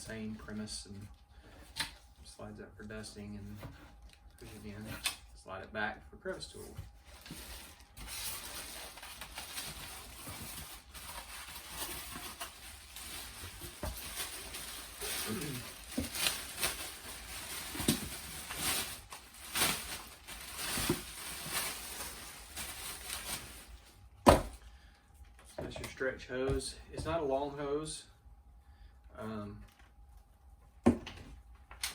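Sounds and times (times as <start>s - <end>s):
packaging and plastic handling: 6.4s - 24.6s.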